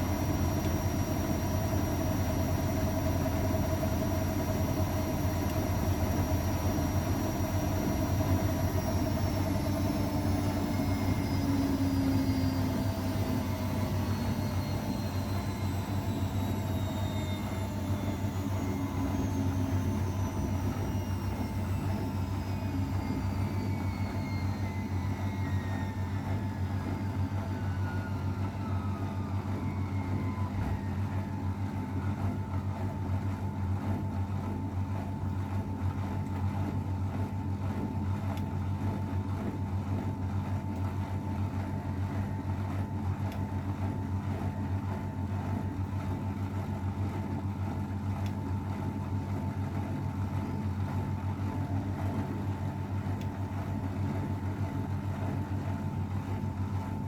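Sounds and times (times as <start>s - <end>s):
falling whine: 0.0s - 33.0s
washing machine spinning: 0.0s - 57.0s.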